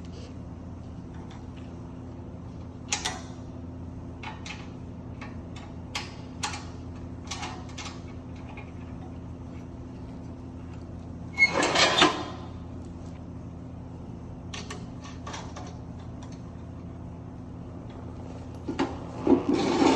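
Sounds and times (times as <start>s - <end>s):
steady low hum: 0.0s - 11.4s, 12.2s - 19.9s.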